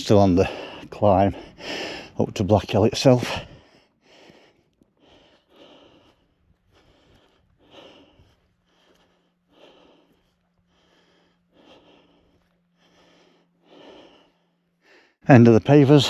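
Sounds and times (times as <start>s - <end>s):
heavy breathing: 0.0s - 16.0s.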